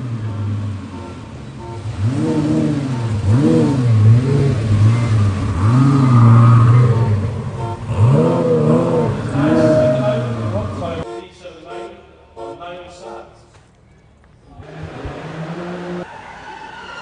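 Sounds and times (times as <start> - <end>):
car engine revving: 0.0 - 11.0, 14.6 - 16.1.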